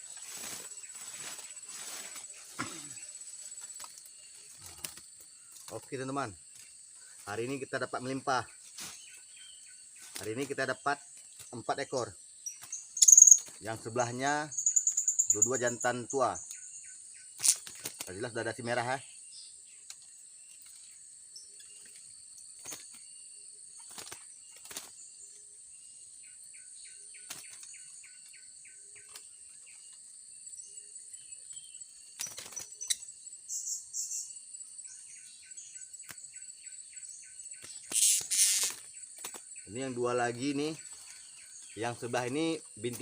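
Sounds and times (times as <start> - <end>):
insects droning: 0.0 - 43.0
parrots chirping: 13.0 - 13.4, 37.9 - 38.7.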